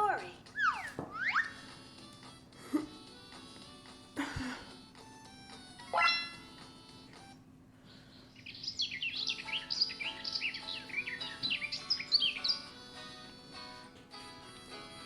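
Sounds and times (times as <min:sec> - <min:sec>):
soft gentle music: 0:00.0 - 0:15.0
birds chirping and singing: 0:00.4 - 0:01.8, 0:05.8 - 0:06.5, 0:07.9 - 0:13.8.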